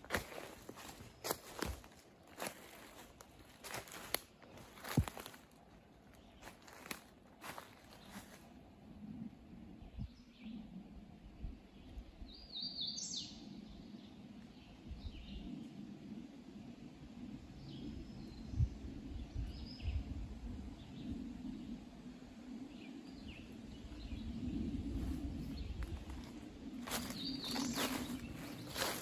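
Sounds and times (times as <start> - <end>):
songbirds chirping: 0.0 - 16.2, 17.1 - 29.0
steady low rumble: 16.8 - 29.0.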